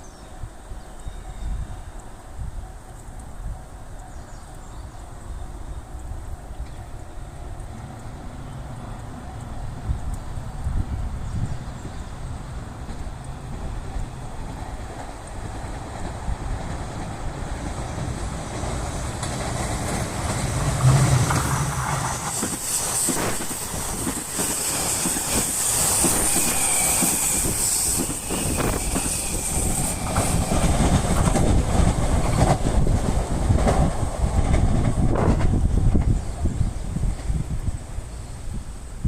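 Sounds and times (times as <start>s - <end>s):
electric train running past: 4.8s - 39.0s
wheels clacking over rail joints: 12.7s - 36.5s.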